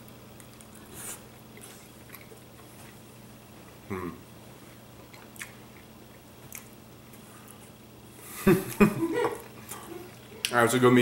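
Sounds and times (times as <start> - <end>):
person chewing: 0.0 - 7.8
closed-mouth voice sounds: 3.9 - 4.2.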